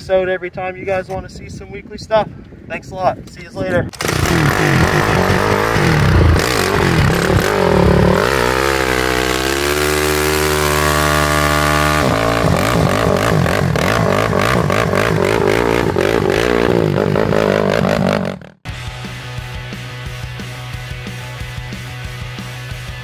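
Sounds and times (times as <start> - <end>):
mini motorcycle engine revving: 3.9 - 18.6.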